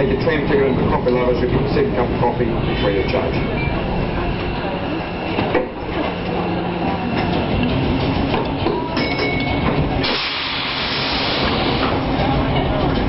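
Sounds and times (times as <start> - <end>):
electric tram rumbling on track: 0.0 - 13.0
tram clattering: 0.0 - 13.0
tram hiss: 9.7 - 13.0.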